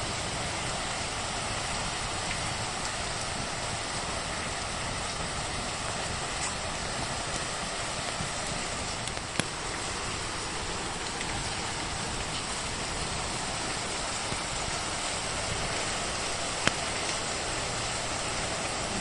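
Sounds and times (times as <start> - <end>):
fireplace fire: 0.0 - 19.0
rain hissing: 0.0 - 19.0
fire popping: 6.0 - 9.8.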